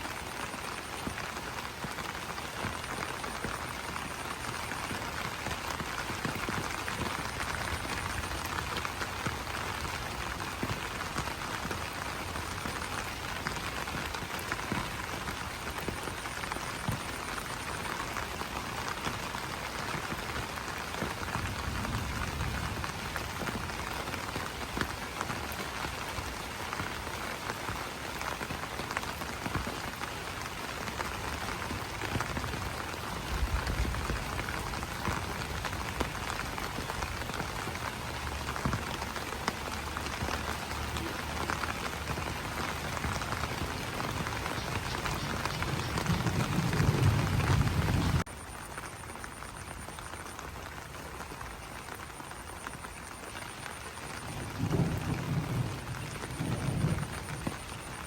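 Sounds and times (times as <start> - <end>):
rain pattering on leaves: 0.0 - 58.0.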